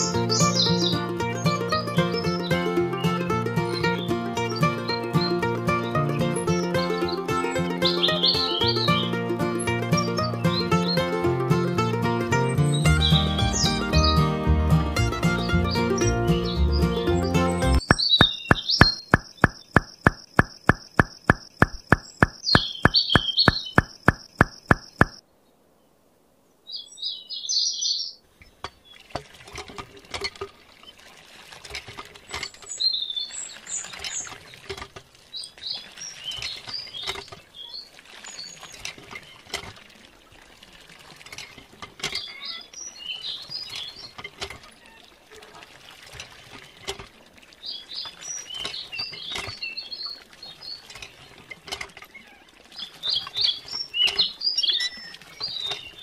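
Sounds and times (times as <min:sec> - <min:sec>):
bird chirps: 0:17.8 - 0:25.2
fast regular clicking: 0:17.8 - 0:25.2
water pouring in thin stream: 0:28.6 - 0:56.0.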